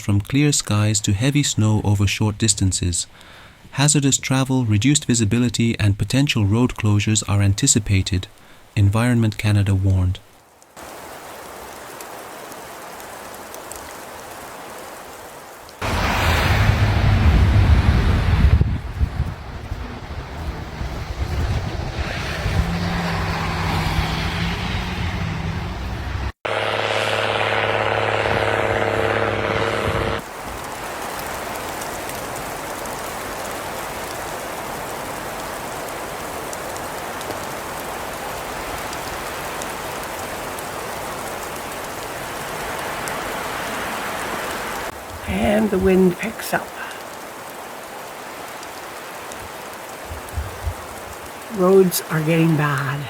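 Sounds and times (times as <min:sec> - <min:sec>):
wind hissing: 0:10.4 - 0:26.4, 0:46.7 - 0:53.0
vehicle engine humming: 0:15.8 - 0:30.2.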